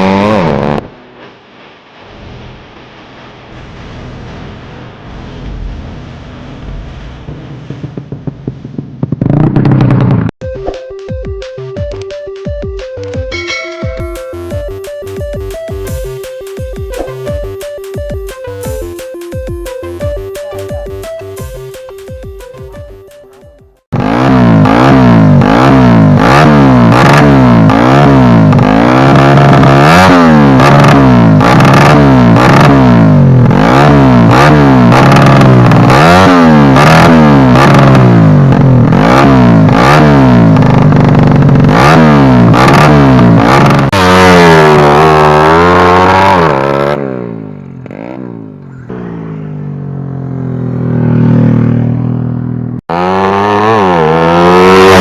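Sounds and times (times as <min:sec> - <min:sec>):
motorcycle engine revving: 0:00.0 - 0:01.4, 0:04.4 - 0:10.4, 0:23.8 - 0:55.0.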